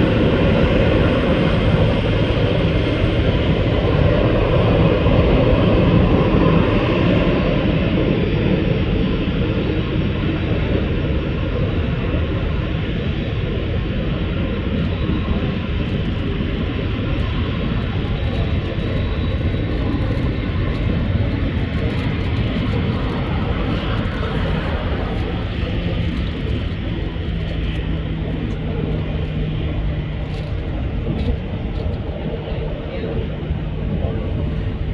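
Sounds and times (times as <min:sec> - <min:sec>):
jet engines rumbling: 0:00.0 - 0:34.9
steady low hum: 0:14.0 - 0:34.9.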